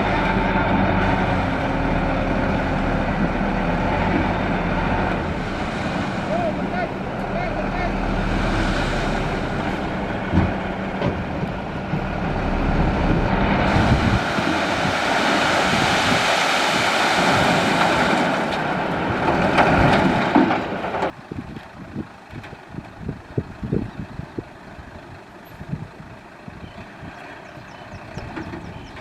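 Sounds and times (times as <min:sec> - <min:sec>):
truck engine running: 0:00.0 - 0:29.0
loud rushing noise: 0:04.7 - 0:11.0, 0:11.8 - 0:20.9.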